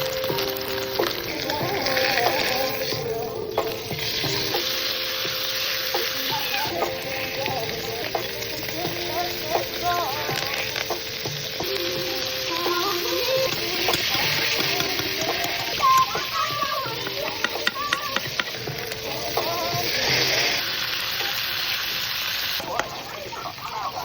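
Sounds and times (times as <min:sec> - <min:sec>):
food sizzling in a hot pan: 0:00.0 - 0:24.0.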